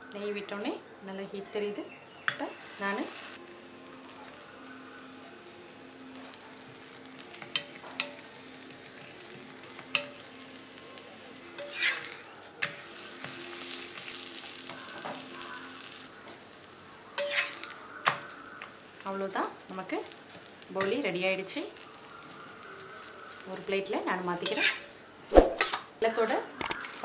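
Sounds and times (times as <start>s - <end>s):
flatbread sizzling in ghee: 2.1s - 25.9s
spatula clicking and scraping on pan: 7.1s - 9.1s, 9.7s - 10.5s, 11.6s - 16.0s, 17.2s - 25.0s.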